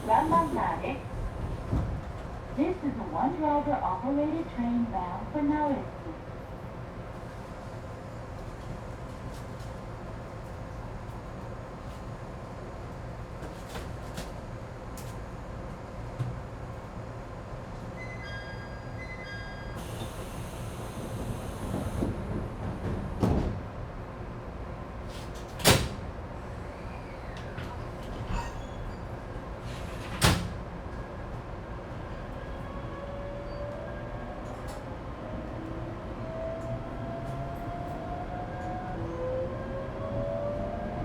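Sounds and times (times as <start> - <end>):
train door chime beeps: 18.0 - 20.8
doors sliding shut with thud: 25.1 - 26.1, 29.6 - 30.6.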